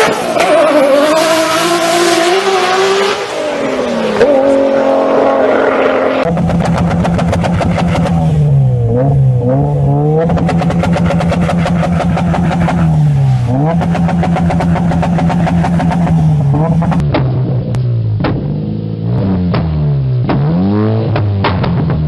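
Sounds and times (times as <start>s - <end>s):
sports car engine revving high: 0.0s - 17.0s, 18.7s - 21.4s
exhaust crackle and pops: 6.2s - 9.0s, 9.7s - 22.0s.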